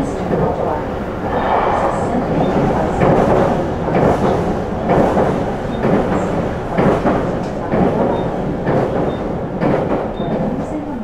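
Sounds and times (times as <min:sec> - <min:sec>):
train wheels rumbling on rail: 0:01.2 - 0:11.0.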